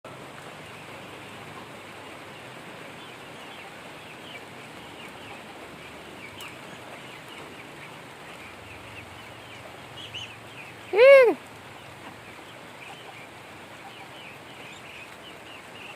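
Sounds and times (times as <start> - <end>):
steady rain: 0.0 - 15.9
ducklings peeping: 0.6 - 15.9.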